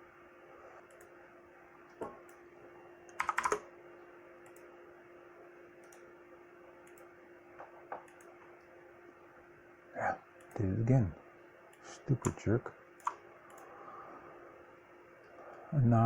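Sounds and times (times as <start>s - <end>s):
steady faint hum: 0.0s - 16.0s
keyboard keystrokes and clicks: 3.1s - 3.7s, 6.8s - 8.4s, 12.2s - 12.4s.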